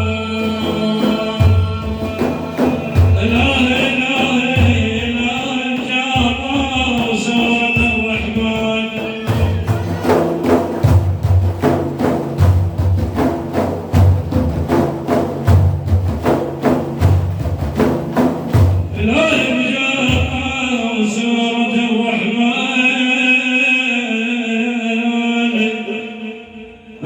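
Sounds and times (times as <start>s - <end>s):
person singing: 0.0s - 10.2s
drum beating quick rhythm: 0.0s - 20.9s.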